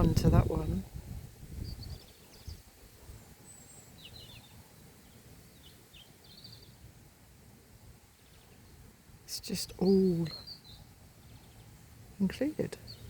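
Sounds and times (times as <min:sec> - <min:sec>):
wind rumble on microphone: 0:00.0 - 0:03.3
distant birds chirping: 0:01.6 - 0:07.0, 0:08.0 - 0:13.0.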